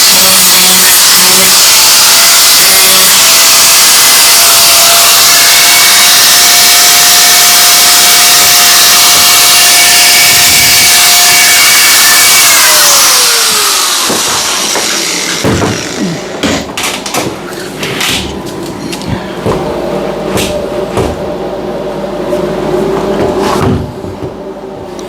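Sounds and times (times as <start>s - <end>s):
angle grinder on metal: 0.0s - 16.6s.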